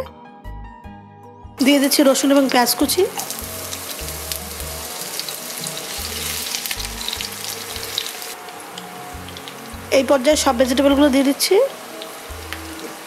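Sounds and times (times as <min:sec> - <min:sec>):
garlic and onion sizzling in oil: 0:01.6 - 0:13.0.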